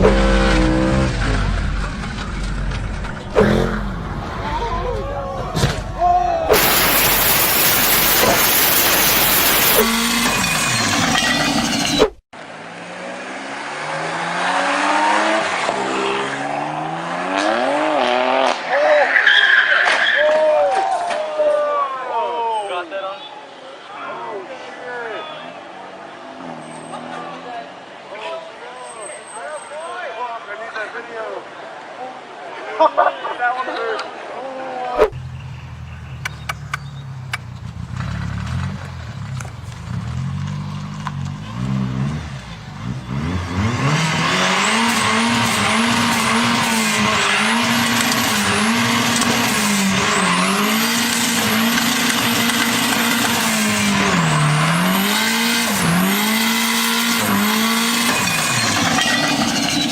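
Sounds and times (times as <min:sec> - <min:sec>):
car engine accelerating: 0:00.0 - 0:05.2, 0:06.6 - 0:18.7, 0:35.0 - 0:59.9
road and wind noise: 0:00.0 - 0:20.3, 0:22.7 - 0:32.8, 0:33.7 - 0:59.9.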